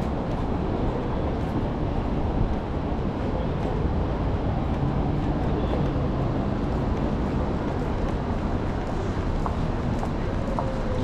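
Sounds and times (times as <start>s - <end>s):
city street traffic rumble: 0.0s - 11.0s.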